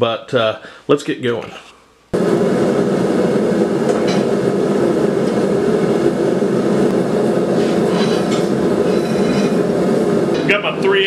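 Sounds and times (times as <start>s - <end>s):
forge burner roaring: 2.1s - 11.0s.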